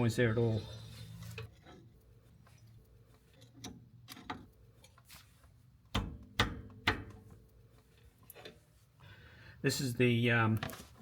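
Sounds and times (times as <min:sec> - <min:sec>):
sharp metallic knocks: 0:05.9 - 0:07.2.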